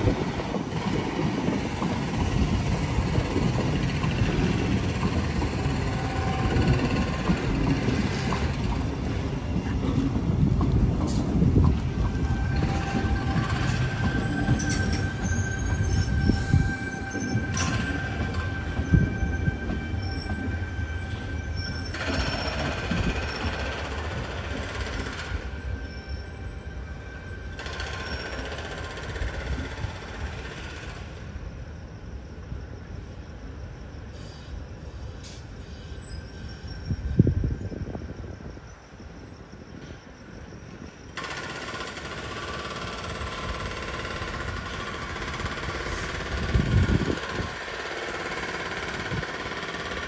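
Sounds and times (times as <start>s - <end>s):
rumble of wheels on rail: 0.0s - 50.0s
thin wheel squeal: 11.9s - 29.4s, 35.2s - 42.1s
hiss: 34.1s - 36.8s.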